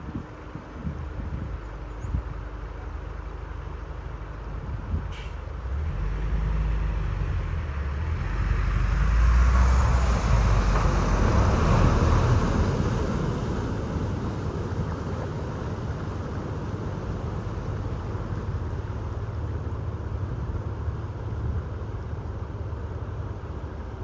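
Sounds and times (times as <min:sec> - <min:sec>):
vehicle engine rumble: 0:00.0 - 0:24.0
water rushing: 0:06.0 - 0:23.9.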